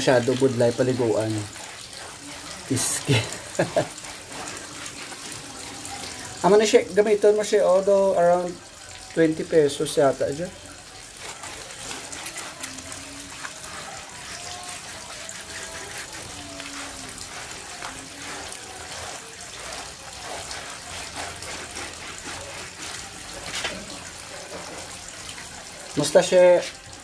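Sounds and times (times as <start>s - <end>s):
tap water running: 0.0s - 27.0s
water splashing: 0.0s - 27.0s.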